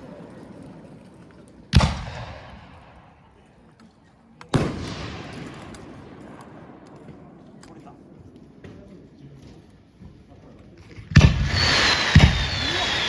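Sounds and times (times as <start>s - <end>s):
fireworks bursting with echo: 4.5s - 8.9s, 11.1s - 13.0s.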